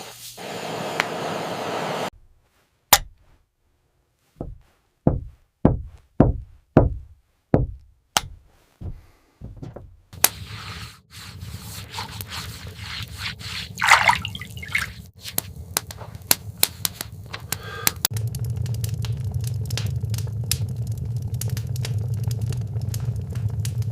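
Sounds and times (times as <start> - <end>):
dull knocks: 4.4 - 10.1
rush of water: 13.8 - 15.0
steady rain: 18.1 - 23.9.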